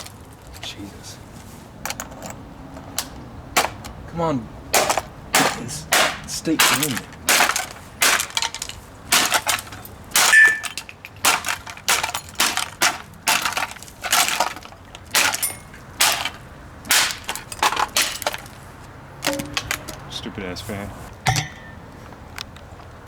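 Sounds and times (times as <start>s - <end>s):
hard blows smashing a plastic fan: 4.7s - 20.1s
plastic cracking and breaking: 6.6s - 15.4s, 16.0s - 18.6s.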